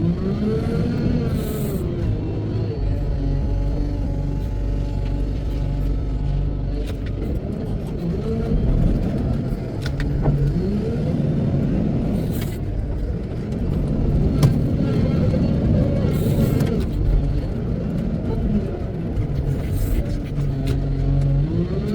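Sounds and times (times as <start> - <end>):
diesel engine revving: 0.0 - 21.9.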